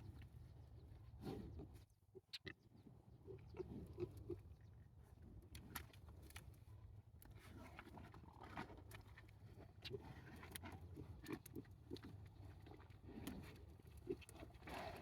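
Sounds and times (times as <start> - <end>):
small clicks and rustles: 5.5 - 15.0.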